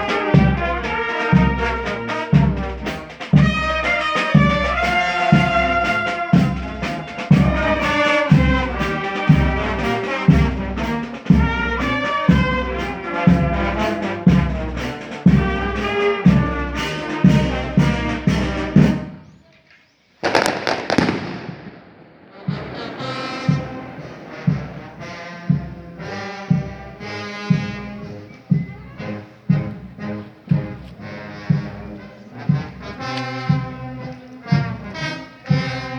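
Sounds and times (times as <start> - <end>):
brass band playing a march: 0.0 - 19.2, 20.2 - 35.9
bass drum beating: 0.4 - 19.1, 22.4 - 34.0
firework bang with hissing tail: 20.2 - 25.6.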